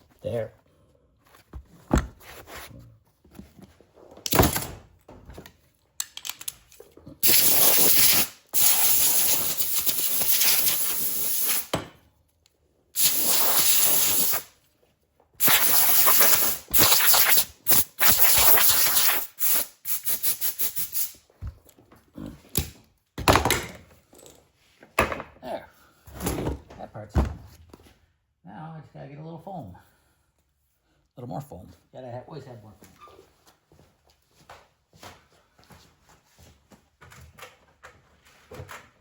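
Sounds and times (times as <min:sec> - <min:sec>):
grinder on foam: 0:13.0 - 0:14.4, 0:15.4 - 0:21.0.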